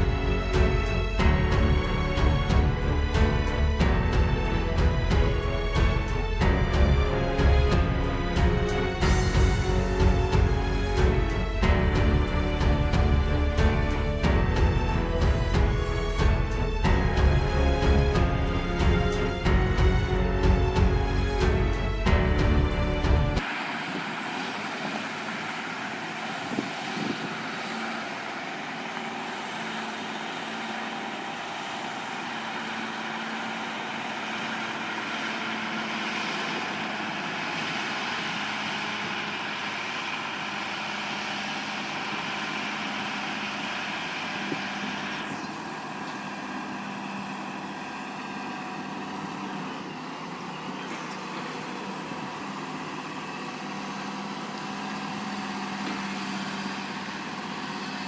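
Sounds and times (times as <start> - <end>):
heavy engine running: 0.0 - 58.0.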